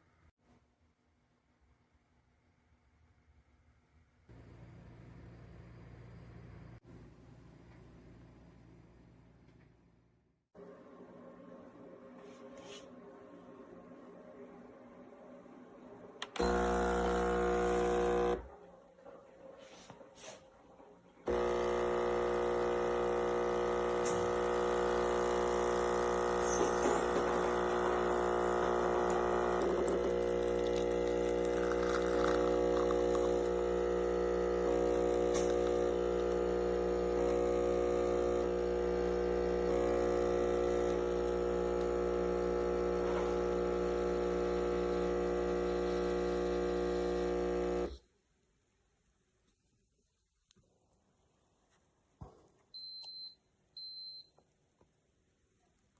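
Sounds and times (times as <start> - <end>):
espresso machine pump buzzing: 16.2 - 18.6, 21.3 - 48.0.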